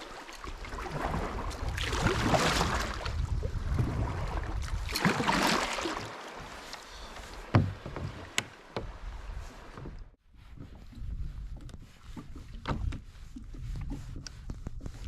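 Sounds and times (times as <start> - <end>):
paddle strokes splashing: 0.0 - 15.0
knock on kayak: 7.5 - 9.0.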